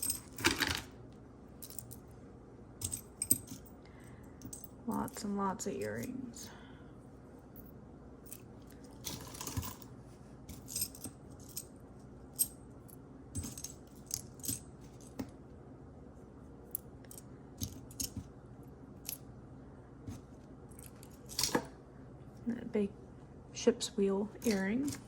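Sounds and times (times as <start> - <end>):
metal jewelry clinking and jangling: 0.0 - 0.9, 1.6 - 2.1, 2.8 - 6.5, 7.5 - 15.3, 16.7 - 18.3, 19.0 - 19.3, 20.7 - 21.7, 24.4 - 25.0.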